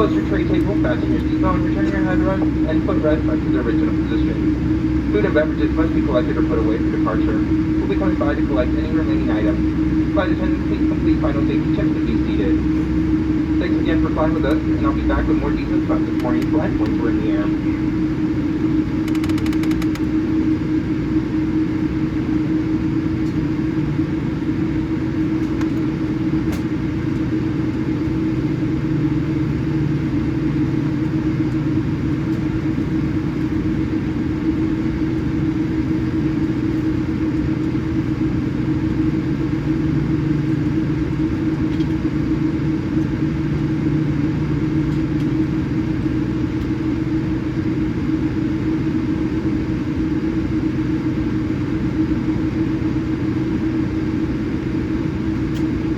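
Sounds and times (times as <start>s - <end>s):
airplane cabin rumble: 0.0s - 55.9s
constant low hum: 0.0s - 55.9s.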